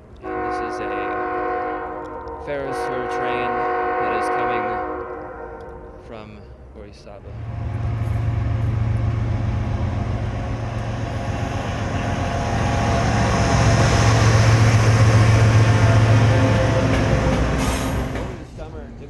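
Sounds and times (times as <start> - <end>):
locomotive engine drone: 0.0 - 19.0
train wheels rumbling: 7.0 - 19.0.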